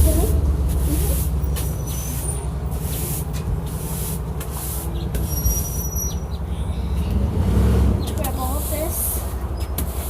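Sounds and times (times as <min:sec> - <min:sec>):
short hissing strokes: 0:00.7 - 0:05.0.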